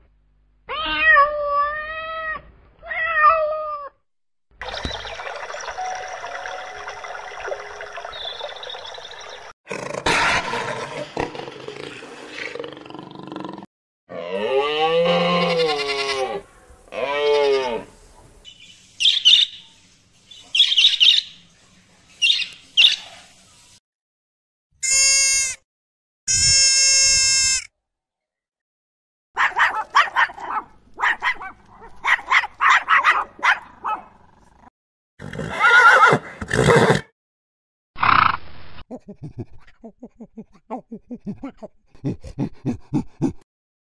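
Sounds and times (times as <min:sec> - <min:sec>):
long steady bleats: 0:14.1 - 0:17.9
small terrier yapping: 0:29.4 - 0:34.1.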